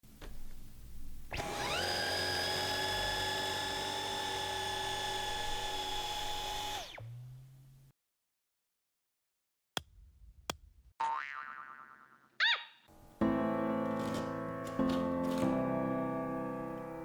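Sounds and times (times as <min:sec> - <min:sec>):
vacuum cleaner motor whine: 0:01.3 - 0:07.0.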